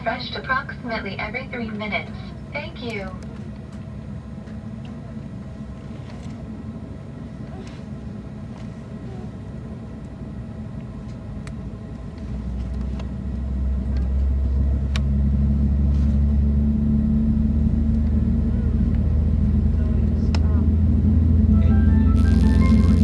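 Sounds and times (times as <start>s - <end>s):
low hum: 21.0s - 23.0s.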